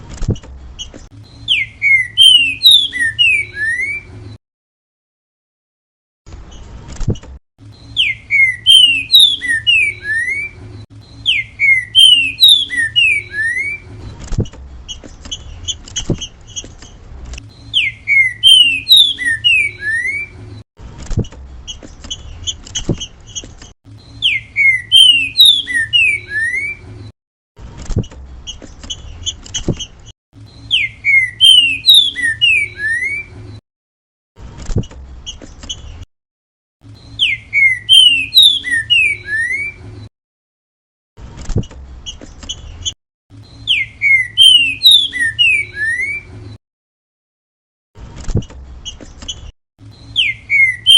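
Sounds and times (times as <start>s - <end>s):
bird whistling descending phrase: 1.5s - 4.1s, 8.0s - 10.6s, 11.2s - 13.8s, 17.8s - 20.3s, 24.2s - 26.8s, 30.7s - 33.3s, 37.2s - 39.8s, 43.7s - 46.3s, 50.2s - 50.9s.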